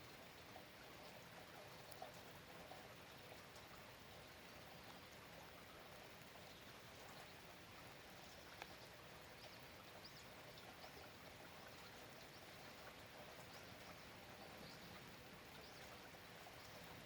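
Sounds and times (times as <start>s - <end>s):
faint rain falling: 0.0s - 17.0s.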